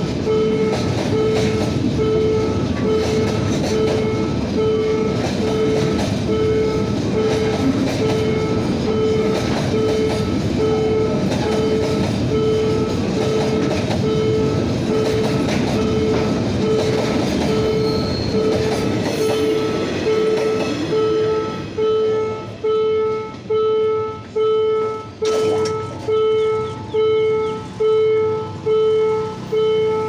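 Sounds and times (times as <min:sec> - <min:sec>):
freight train wheels clattering: 0:00.0 - 0:23.5
level crossing warning tone: 0:00.0 - 0:30.0.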